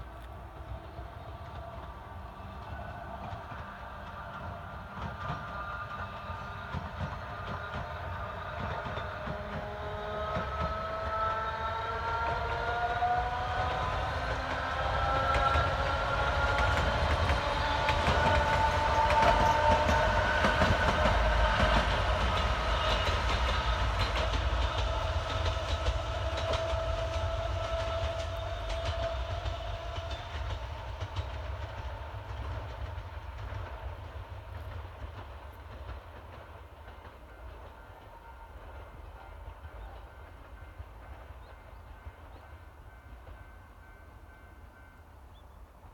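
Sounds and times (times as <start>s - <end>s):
wheels clattering on rails: 2.6s - 42.4s.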